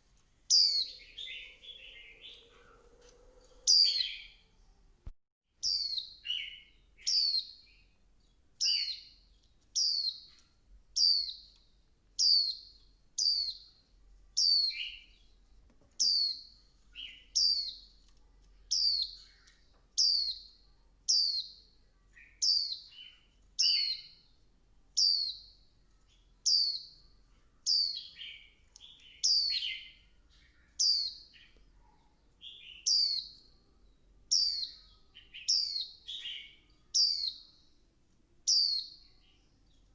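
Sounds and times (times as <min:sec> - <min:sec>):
bird calling: 0:00.5 - 0:04.4.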